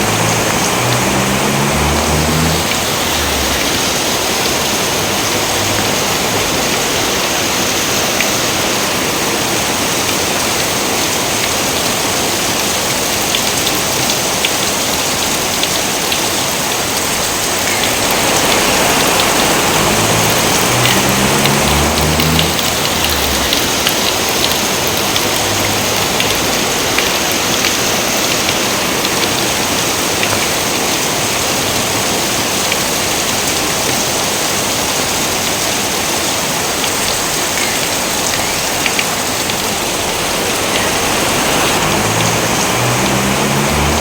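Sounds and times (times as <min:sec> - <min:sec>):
low stepped tones: 0:00.0 - 0:04.6, 0:17.8 - 0:26.4
rain falling on surfaces: 0:00.0 - 0:44.0.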